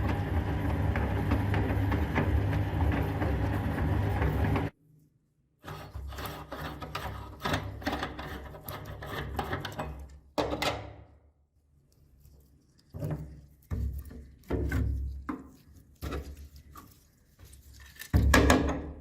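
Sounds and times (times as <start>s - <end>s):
meat grinder crunching candy: 0.0s - 4.8s.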